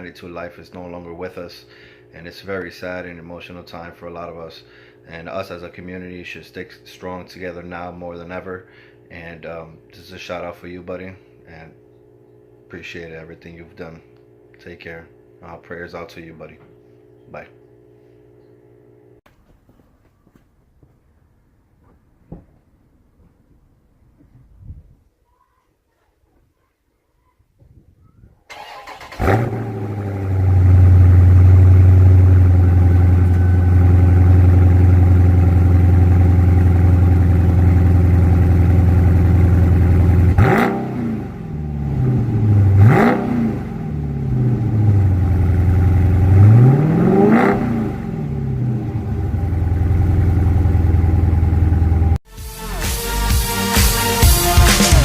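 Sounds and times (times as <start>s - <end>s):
car engine revving: 28.5s - 52.2s
car engine starting and idling: 28.5s - 52.2s.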